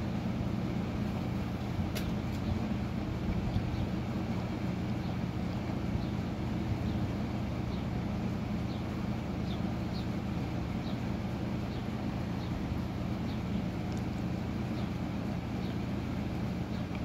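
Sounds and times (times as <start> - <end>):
ceiling fan motor hum: 0.0 - 17.0.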